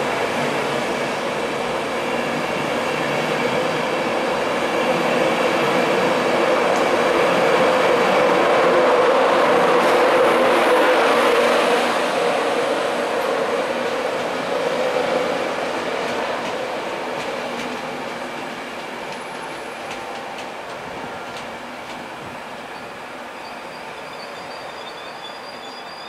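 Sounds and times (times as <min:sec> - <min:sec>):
passenger train passing: 0:00.0 - 0:26.0.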